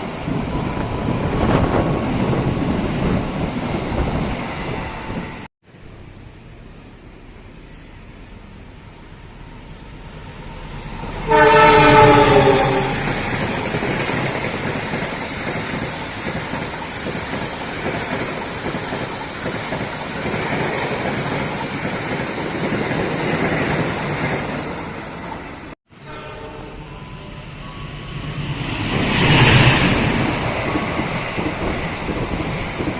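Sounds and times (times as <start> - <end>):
train wheels on rails: 6.6 - 25.8, 26.5 - 32.9
train horn blast: 11.2 - 13.3, 25.9 - 28.0.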